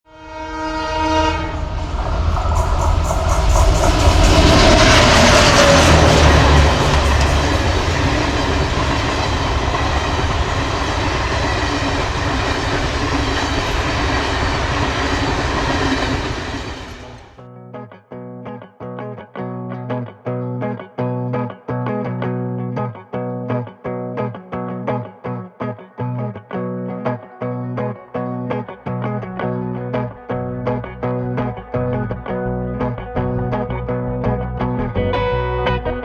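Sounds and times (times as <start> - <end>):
locomotive horn: 0.1 - 9.0
electric guitar music: 0.4 - 36.0
locomotive engine rumble: 0.8 - 17.4
train coaches rattling: 0.9 - 17.4.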